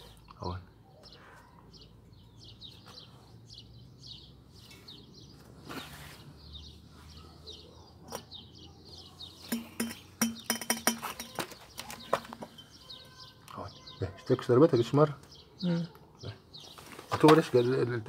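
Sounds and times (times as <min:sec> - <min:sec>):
small birds chirping: 0:00.0 - 0:18.0
hand tapping glass jar: 0:09.5 - 0:11.4.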